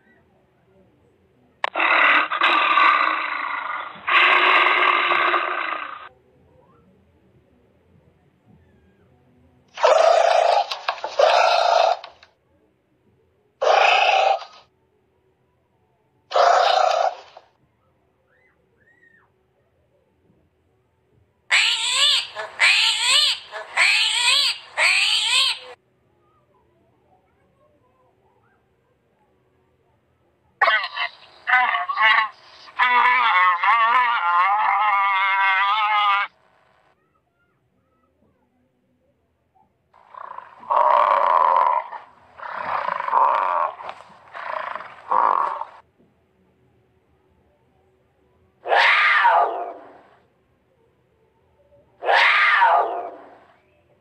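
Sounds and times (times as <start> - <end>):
armadillo crying: 9.8 - 12.1, 13.6 - 14.6, 16.3 - 17.4, 21.5 - 25.8, 30.6 - 36.4, 40.0 - 45.8, 48.6 - 50.1, 52.0 - 53.5.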